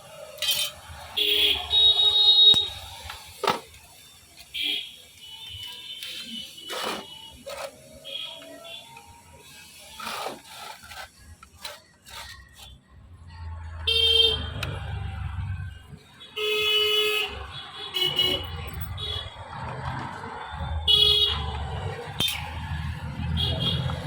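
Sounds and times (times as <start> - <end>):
vehicle horns honking: 0.4 - 2.8, 13.8 - 14.8, 16.2 - 19.5, 20.8 - 22.6, 23.3 - 24.0.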